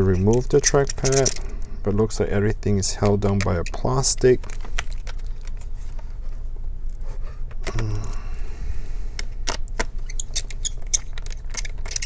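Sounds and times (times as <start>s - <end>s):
small screws clinking: 0.0s - 1.6s
plastic parts clicking: 0.0s - 1.8s, 2.4s - 6.0s, 6.9s - 8.2s, 9.1s - 12.0s
steady low hum: 0.0s - 12.0s.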